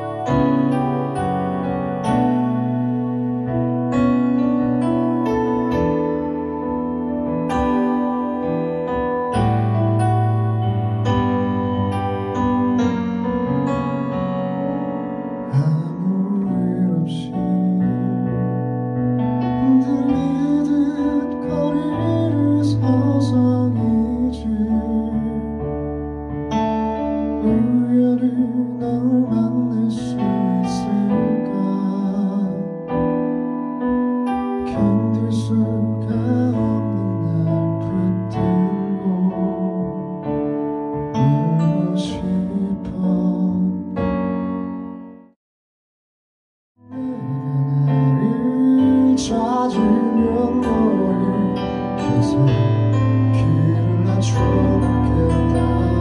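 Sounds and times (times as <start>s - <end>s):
digital piano chords: 0.0s - 45.4s, 46.8s - 56.0s
man singing: 15.4s - 18.6s, 19.6s - 25.8s, 27.4s - 32.9s, 34.6s - 40.4s, 41.2s - 44.0s, 46.9s - 56.0s.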